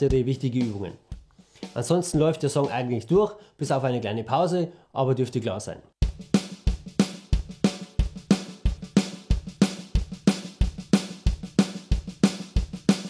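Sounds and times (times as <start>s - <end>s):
drum kit playing a steady beat: 0.0s - 3.3s, 6.0s - 13.0s.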